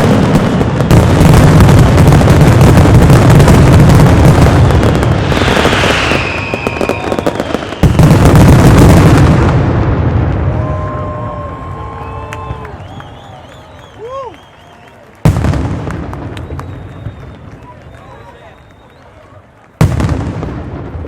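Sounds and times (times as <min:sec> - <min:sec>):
barrage of firework bangs: 0:00.0 - 0:11.5, 0:15.2 - 0:17.5, 0:19.8 - 0:21.0
big firework boom: 0:00.0 - 0:11.5, 0:15.3 - 0:17.3, 0:19.8 - 0:21.0
falling firework whistle: 0:04.8 - 0:09.4, 0:10.2 - 0:19.4.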